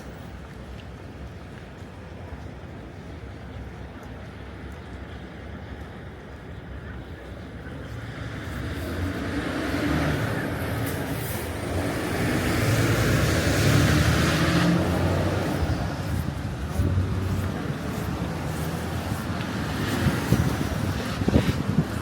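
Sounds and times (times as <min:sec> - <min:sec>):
low engine hum: 0:07.6 - 0:22.0
tyres hissing on wet road: 0:07.7 - 0:22.0.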